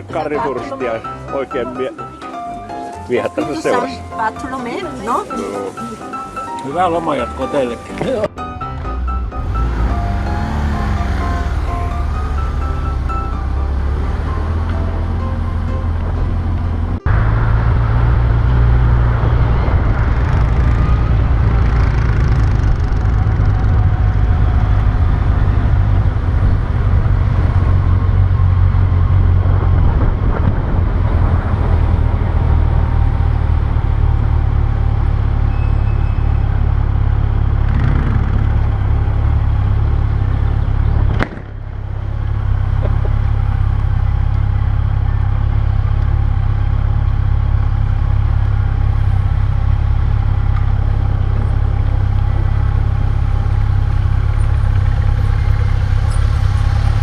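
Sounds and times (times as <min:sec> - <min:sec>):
motorcycle engine: 0:04.8 - 0:57.0
wind rumble: 0:08.1 - 0:46.7.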